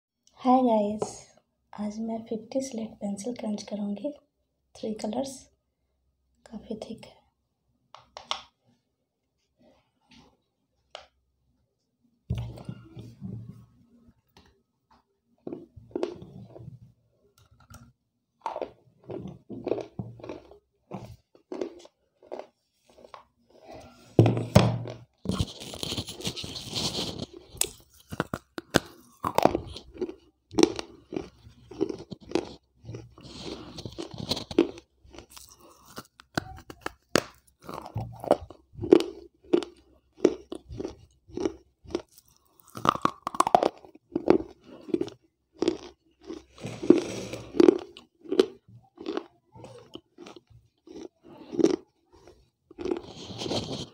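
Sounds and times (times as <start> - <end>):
sharp crunching and gritty chewing: 15.4 - 16.8, 17.4 - 24.1, 24.7 - 53.9.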